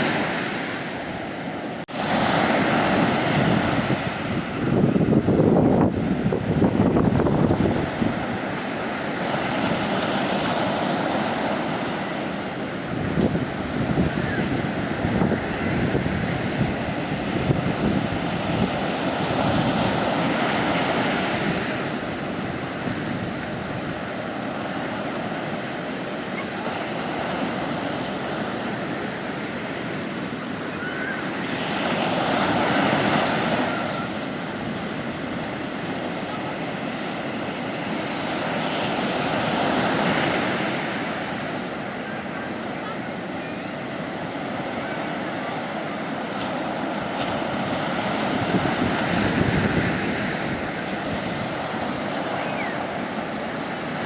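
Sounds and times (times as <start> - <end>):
sea waves breaking on beach: 0.0 - 54.0
wind rumbling on microphone: 2.2 - 25.5, 47.0 - 54.0.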